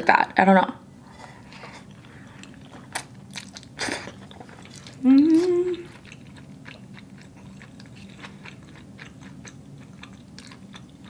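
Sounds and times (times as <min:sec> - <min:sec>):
low steady hum: 0:00.0 - 0:11.0
chewing with wet mouth clicks: 0:01.8 - 0:05.0, 0:05.9 - 0:11.0.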